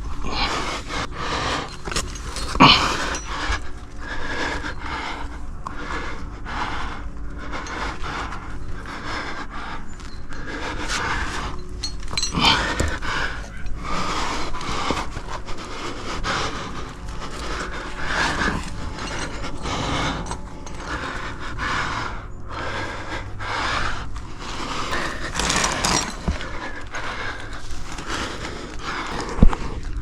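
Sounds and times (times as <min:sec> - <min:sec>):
person breathing hard: 0:00.0 - 0:30.0
shoes scraping against rock: 0:24.8 - 0:26.6.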